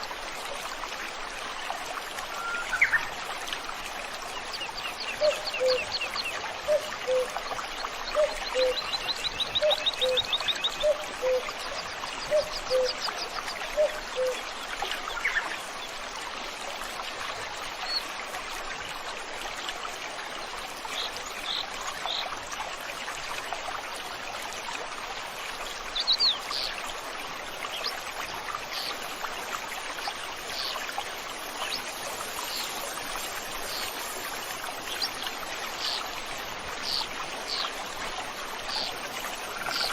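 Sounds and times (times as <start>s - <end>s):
stream flowing: 0.0s - 39.9s
wild birds singing: 4.4s - 7.3s, 8.0s - 11.5s, 12.2s - 13.1s, 13.8s - 14.4s, 30.5s - 37.8s.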